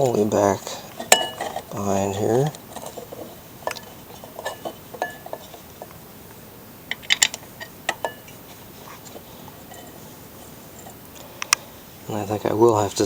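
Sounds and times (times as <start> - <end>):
light metal clinks and taps: 0.9 - 1.8, 2.4 - 6.0, 6.9 - 8.4.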